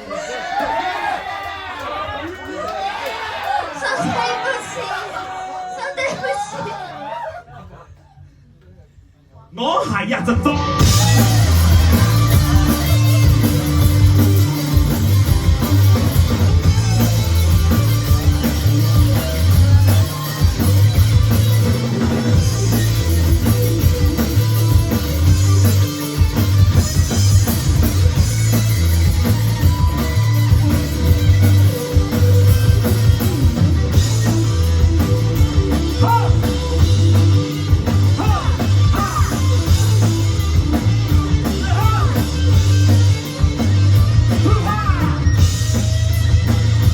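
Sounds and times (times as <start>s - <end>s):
live rock band playing: 10.2s - 46.9s.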